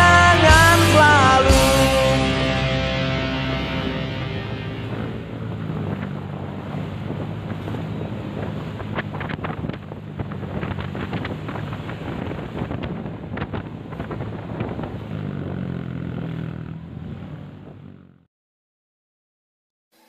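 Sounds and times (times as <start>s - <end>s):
engine running: 0.0s - 18.3s
wind buffeting microphone: 2.3s - 17.9s.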